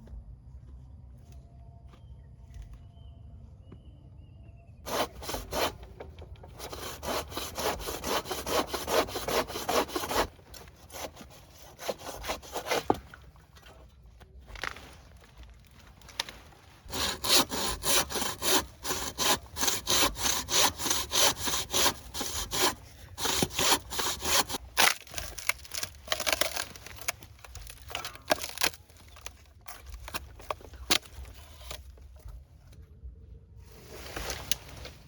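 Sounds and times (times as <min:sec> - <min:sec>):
hand saw cutting wood: 0:04.9 - 0:13.1, 0:16.9 - 0:28.8.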